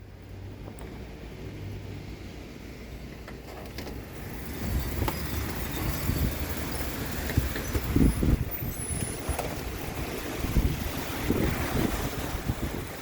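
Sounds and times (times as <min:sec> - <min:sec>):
wind buffeting microphone: 0:03.7 - 0:13.0.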